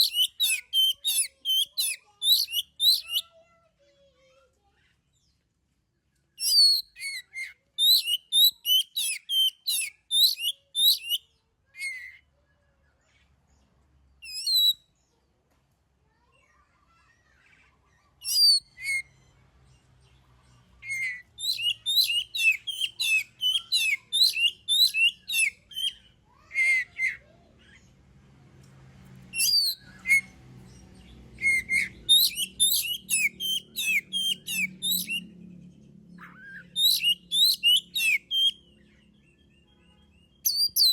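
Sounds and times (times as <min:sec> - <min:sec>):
bird singing whistled notes: 0:00.0 - 0:03.2, 0:06.4 - 0:12.2, 0:14.2 - 0:14.9, 0:18.2 - 0:19.1, 0:20.8 - 0:27.2, 0:29.4 - 0:30.4, 0:31.0 - 0:35.3, 0:36.2 - 0:40.9.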